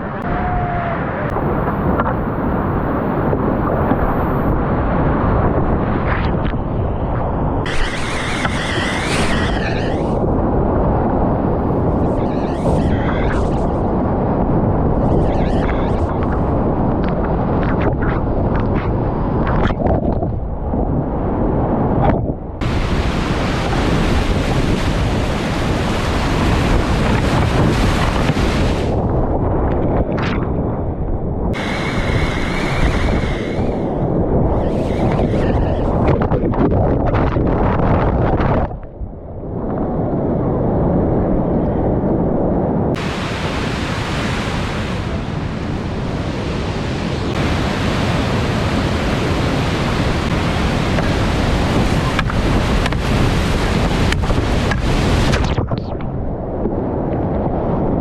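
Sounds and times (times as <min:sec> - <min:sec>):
wind rumble on microphone: 0:00.0 - 0:58.0
rushing river water: 0:22.6 - 0:29.0, 0:31.6 - 0:34.0, 0:43.0 - 0:55.7.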